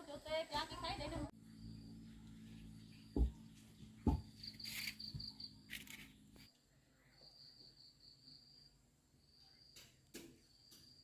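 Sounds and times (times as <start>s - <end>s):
low hum: 1.1s - 7.1s
thump: 3.2s - 3.4s, 4.0s - 4.4s.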